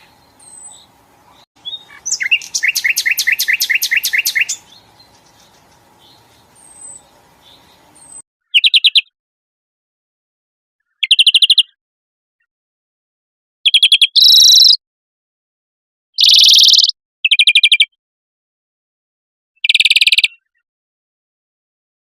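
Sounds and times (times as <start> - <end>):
harsh buzzy bird calls: 0.0 - 9.0, 16.2 - 17.5
songbird trills: 0.0 - 9.1, 10.9 - 11.8, 13.7 - 14.8, 16.2 - 17.9, 19.6 - 20.6.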